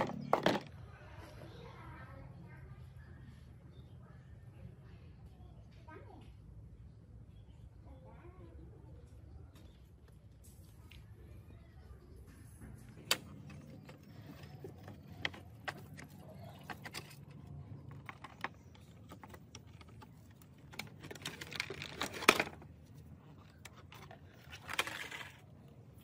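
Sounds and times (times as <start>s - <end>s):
scraping rustles: 12.8s - 26.0s
clicks and clinks of small parts: 13.0s - 25.5s.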